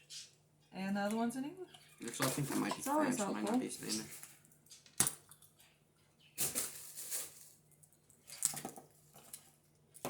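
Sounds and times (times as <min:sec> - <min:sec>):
paper rustling: 0:06.4 - 0:07.6.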